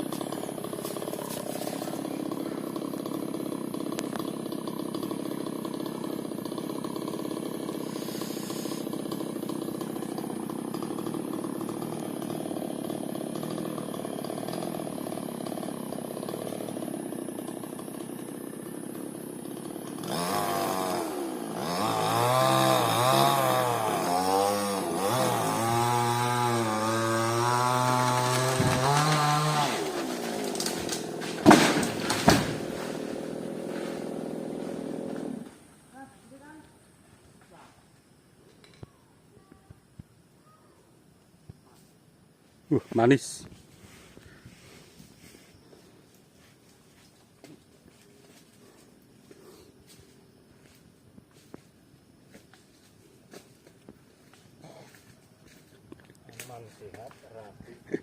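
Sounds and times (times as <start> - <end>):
chainsaw revving and cutting: 0.0 - 35.6.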